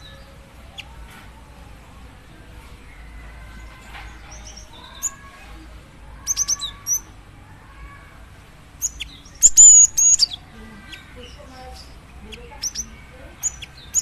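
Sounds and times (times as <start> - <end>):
bird giving sharp chip calls: 8.8 - 11.1.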